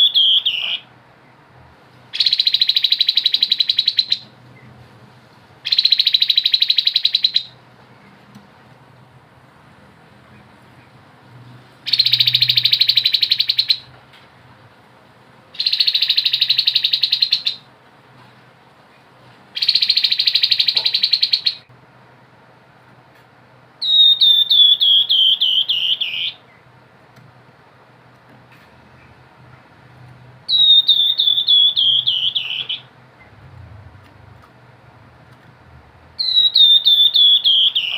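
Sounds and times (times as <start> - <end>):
bird down-slurred whistled notes: 0.0 - 0.9, 11.9 - 13.8, 23.8 - 26.4, 30.5 - 32.9, 36.2 - 37.9
bird buzzy rattling trills: 2.1 - 4.3, 11.8 - 13.9, 15.6 - 17.7, 19.6 - 21.7, 36.2 - 37.9.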